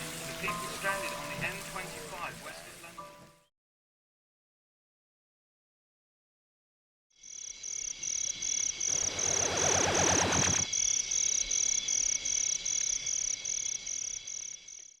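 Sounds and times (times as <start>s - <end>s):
crickets chirping: 7.2s - 15.0s.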